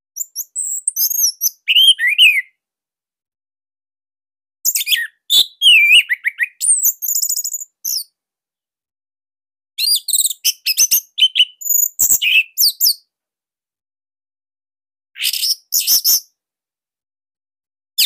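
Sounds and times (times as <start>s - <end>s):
bird singing whistles and trills: 0.2s - 2.6s, 4.7s - 8.1s, 9.8s - 13.1s, 15.2s - 16.3s.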